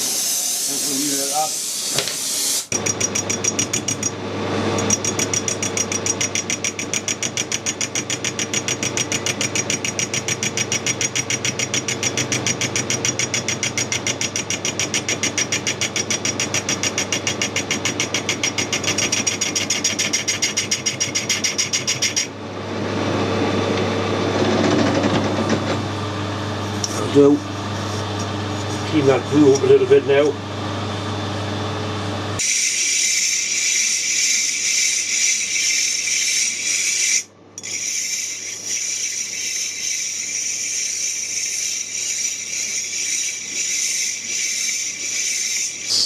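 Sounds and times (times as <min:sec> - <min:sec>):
small machine pulsing: 0:32.4 - 0:46.0.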